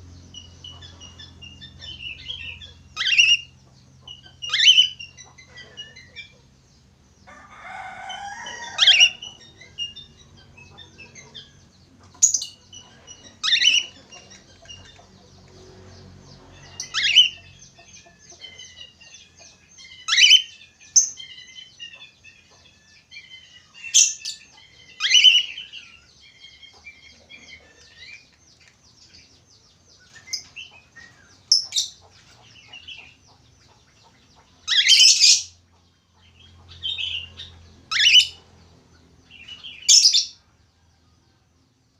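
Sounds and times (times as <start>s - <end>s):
budgerigar twittering: 0.3s - 6.4s, 8.8s - 11.6s, 12.2s - 15.0s, 16.6s - 19.0s, 19.8s - 22.1s, 23.3s - 25.9s, 34.6s - 35.6s, 36.6s - 38.4s.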